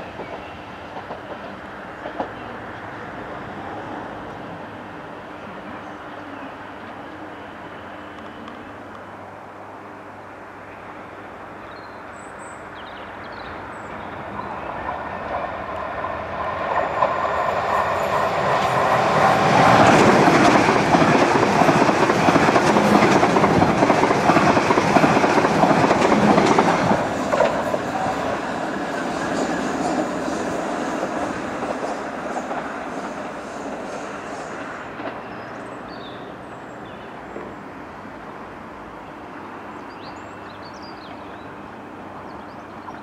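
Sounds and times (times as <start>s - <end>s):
train running past: 0.0s - 43.0s.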